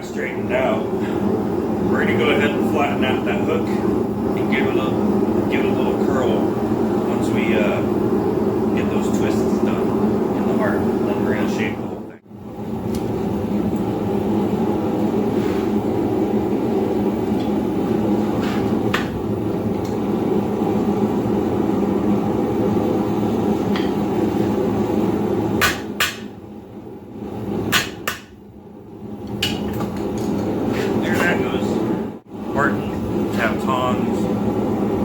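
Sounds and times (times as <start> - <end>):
hammer striking steel on anvil: 25.6 - 26.4, 27.7 - 28.4.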